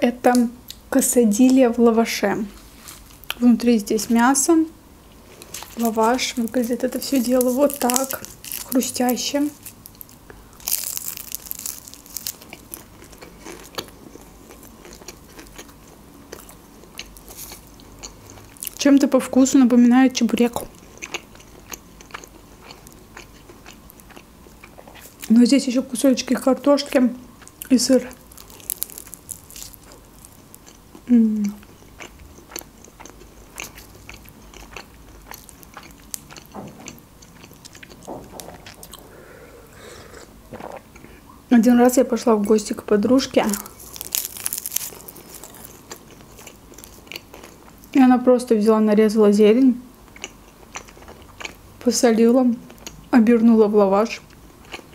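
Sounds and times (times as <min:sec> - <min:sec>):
crunchy chewing: 0:05.1 - 0:18.9, 0:20.5 - 0:25.3, 0:27.4 - 0:41.2, 0:43.4 - 0:48.0, 0:50.1 - 0:51.6, 0:54.2 - 0:54.9
sip of coffee: 0:39.0 - 0:40.8.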